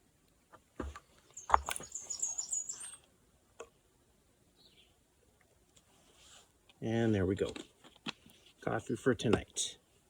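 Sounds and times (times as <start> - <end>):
small bird twittering: 1.4 - 3.0.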